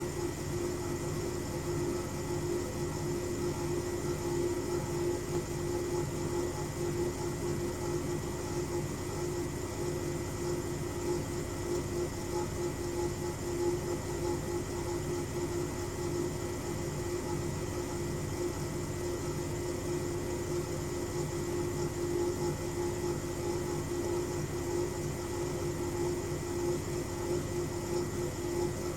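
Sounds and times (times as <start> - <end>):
washing machine spinning: 0.0 - 28.9.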